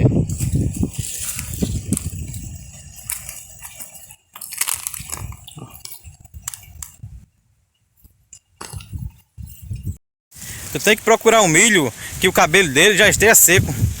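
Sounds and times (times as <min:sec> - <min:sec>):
dry corn leaves rustling: 0:00.0 - 0:07.2, 0:10.4 - 0:14.0.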